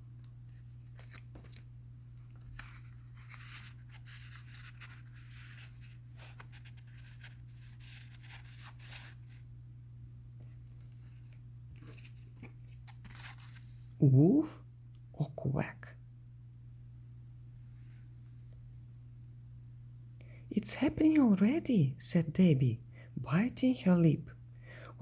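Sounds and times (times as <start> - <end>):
steady low hum: 0.0 - 25.0
book pages turning: 0.5 - 9.4, 10.4 - 14.0.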